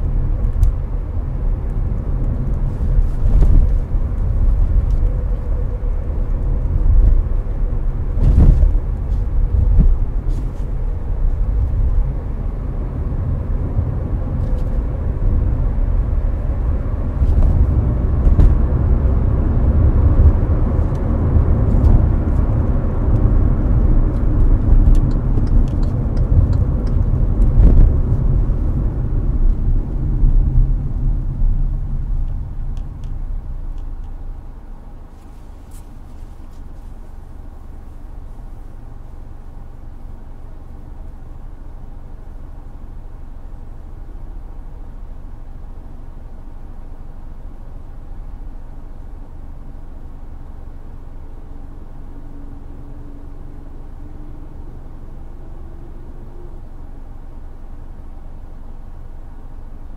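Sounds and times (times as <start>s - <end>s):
air-conditioning fan noise: 0.0s - 59.9s
road and tyre rumble: 0.0s - 59.9s
brief thumps: 17.2s - 18.8s.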